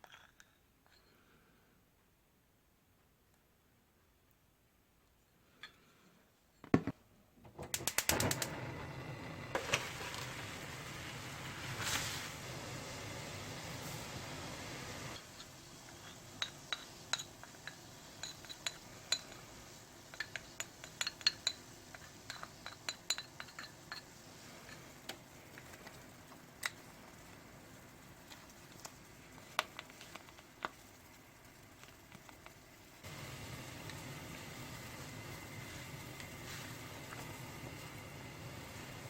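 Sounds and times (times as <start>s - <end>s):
utensils clinking against a dish: 16.0s - 19.5s, 20.1s - 24.9s.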